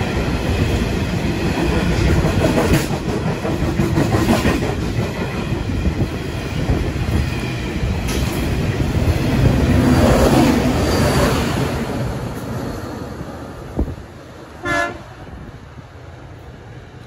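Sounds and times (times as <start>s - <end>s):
freight train wheels clattering: 0.0s - 11.4s
locomotive passing: 0.0s - 17.0s.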